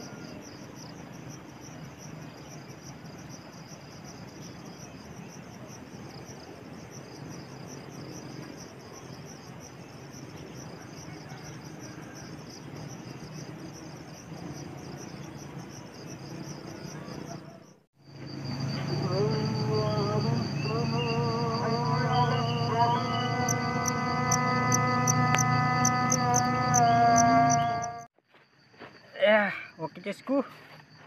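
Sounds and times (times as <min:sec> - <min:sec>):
crickets chirping: 0:00.0 - 0:31.0.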